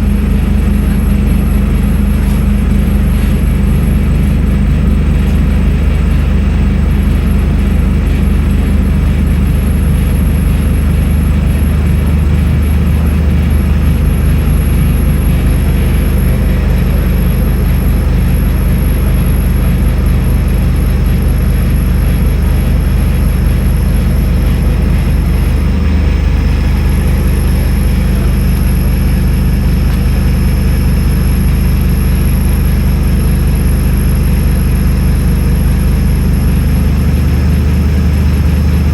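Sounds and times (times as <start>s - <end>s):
bus diesel engine drone: 0.0s - 38.9s
high whine: 0.0s - 38.9s.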